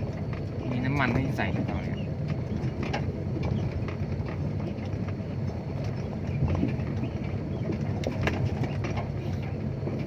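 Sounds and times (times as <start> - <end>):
diesel truck engine running: 0.0 - 10.0
knocks and rattles: 0.0 - 10.0.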